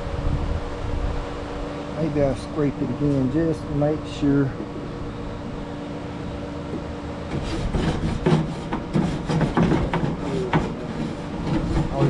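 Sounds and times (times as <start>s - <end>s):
steady low hum: 0.0s - 12.0s
grill grate being scraped: 7.3s - 12.0s.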